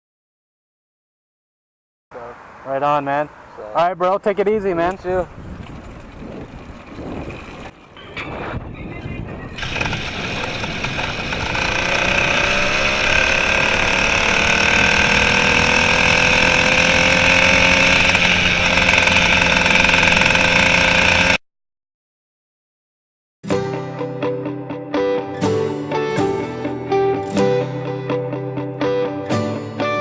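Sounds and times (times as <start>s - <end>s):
two-stroke bicycle engine running: 9.6s - 21.4s.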